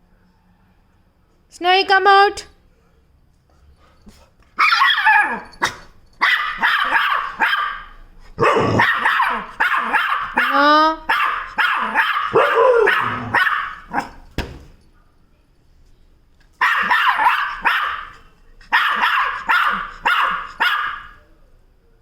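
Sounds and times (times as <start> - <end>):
dog barking: 4.6 - 14.2, 16.6 - 21.2.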